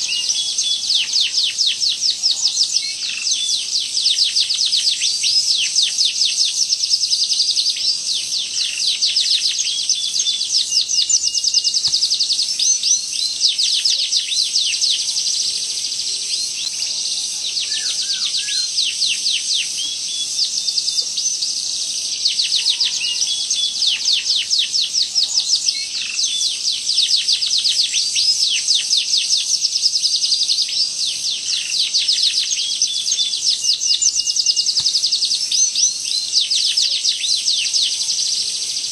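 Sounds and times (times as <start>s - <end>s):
canary singing rapid rolls: 0.0s - 30.6s, 31.2s - 38.9s.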